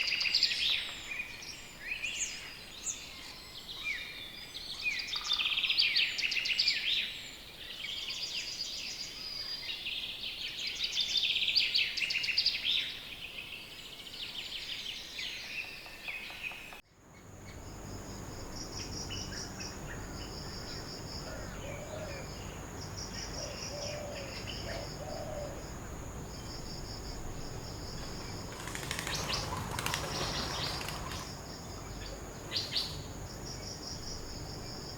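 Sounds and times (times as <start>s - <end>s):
birds singing and chirping: 0.0s - 34.9s
insects chirping in pulses: 17.0s - 34.9s.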